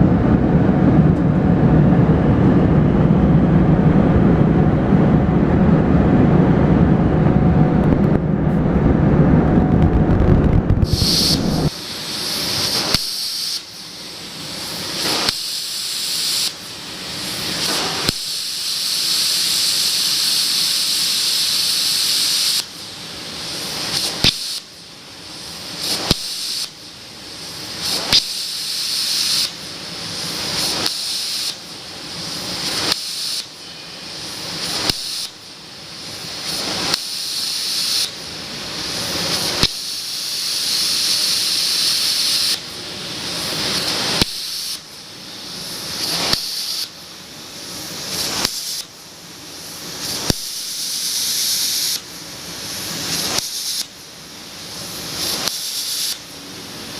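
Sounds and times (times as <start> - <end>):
loud low rumbling: 0.0 - 11.7
plasma torch sharp crack: 9.8 - 47.0, 47.6 - 49.0, 49.6 - 54.0, 54.7 - 56.4
plasma torch hissing: 9.8 - 56.9.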